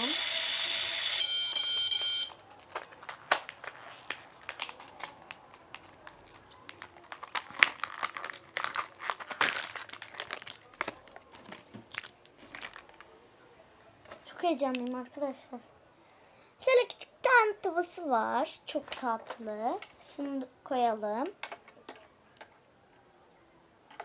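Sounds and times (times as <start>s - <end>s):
packaging crinkling and rustling: 1.5s - 13.2s.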